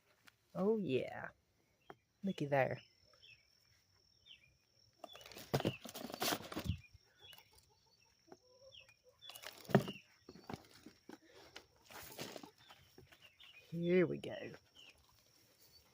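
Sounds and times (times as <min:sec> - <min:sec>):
faint bird chirps: 0:01.6 - 0:15.9
hands scraping through soil: 0:05.1 - 0:06.9.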